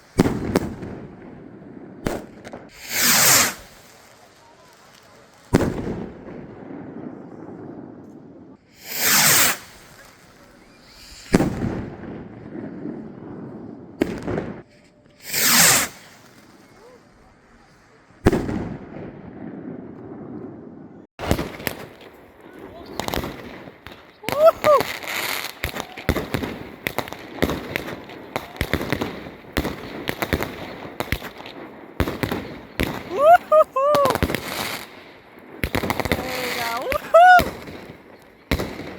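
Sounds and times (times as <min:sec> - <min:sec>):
firework crackling: 0:00.0 - 0:14.6, 0:15.2 - 0:20.3, 0:21.2 - 0:38.9
firework whoosh: 0:02.0 - 0:04.0, 0:08.7 - 0:14.3, 0:15.2 - 0:16.8.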